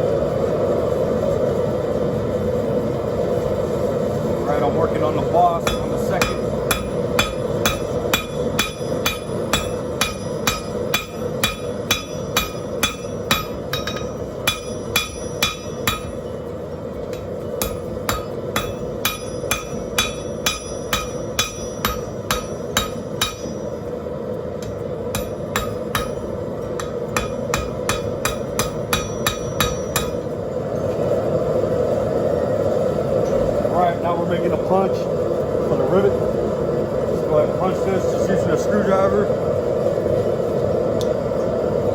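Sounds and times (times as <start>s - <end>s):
forge rushing hiss: 0.0s - 41.9s
hammer ringing on anvil: 5.6s - 23.9s, 24.6s - 30.3s.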